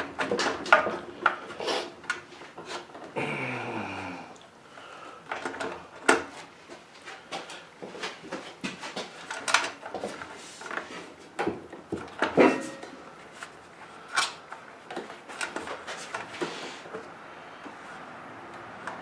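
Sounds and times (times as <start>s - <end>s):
hand tools clicking and clattering: 7.1s - 17.1s.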